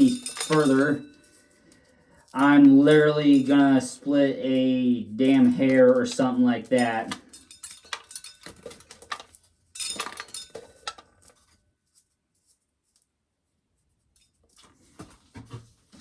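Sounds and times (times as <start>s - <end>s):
corn kernels rattling into tub: 0.0s - 1.0s, 2.4s - 11.3s.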